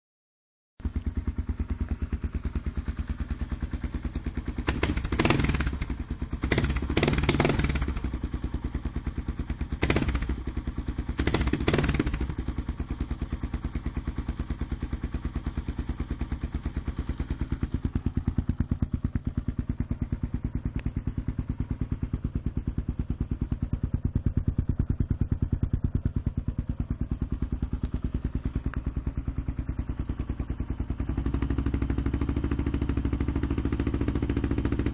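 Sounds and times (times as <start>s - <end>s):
motorcycle engine idling: 0.8s - 34.9s.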